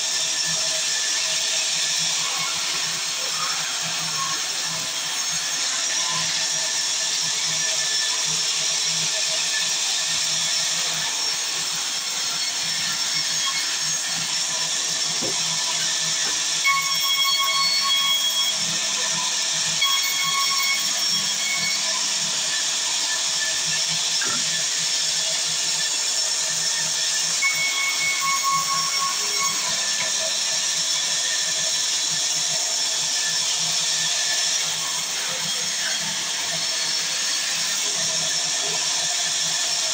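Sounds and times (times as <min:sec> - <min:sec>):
saw cutting wood: 0:00.0 - 0:39.9
whining saw tone: 0:01.2 - 0:31.7.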